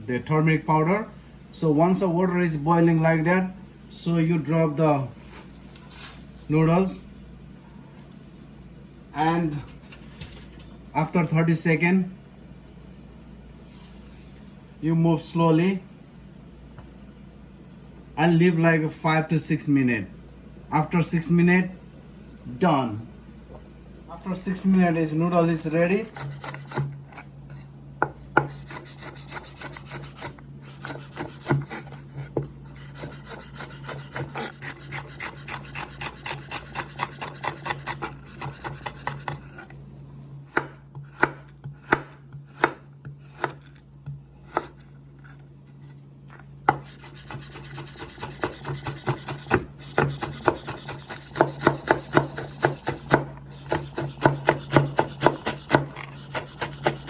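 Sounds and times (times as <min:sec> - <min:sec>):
knife chopping on cutting board: 0:26.1 - 0:27.0, 0:28.0 - 0:39.6, 0:40.5 - 0:44.8, 0:46.6 - 0:57.0.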